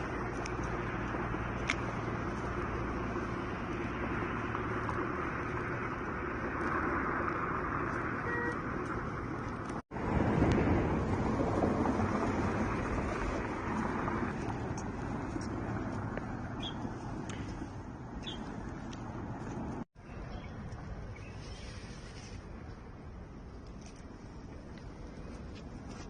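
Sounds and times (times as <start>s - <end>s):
tractor engine running: 0.0s - 19.8s.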